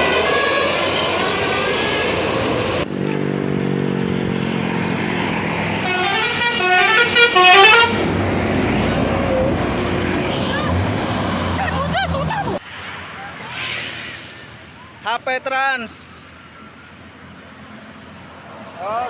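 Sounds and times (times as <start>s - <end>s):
multi-tone bus horn melodies: 0.0s - 2.8s, 5.7s - 9.6s.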